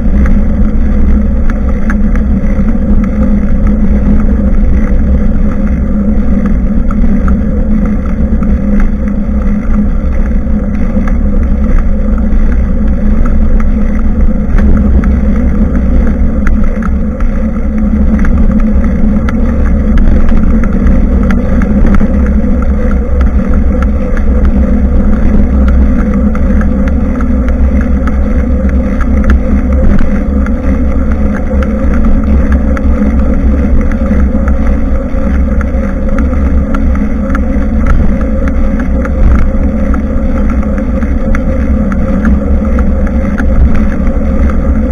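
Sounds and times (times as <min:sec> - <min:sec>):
tyre and road noise: 0:00.0 - 0:44.9
wind buffeting microphone: 0:00.0 - 0:44.9.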